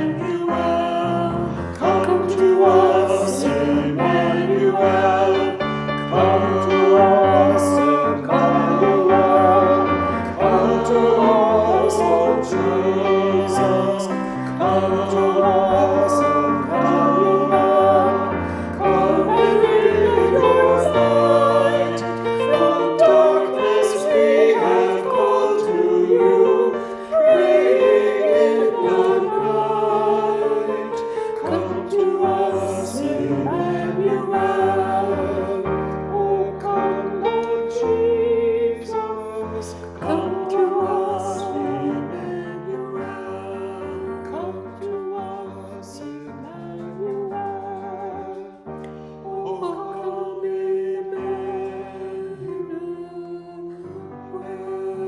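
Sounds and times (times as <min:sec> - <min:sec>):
instrumental accompaniment: 0:00.0 - 0:42.6
choir singing a hymn: 0:00.0 - 0:55.0.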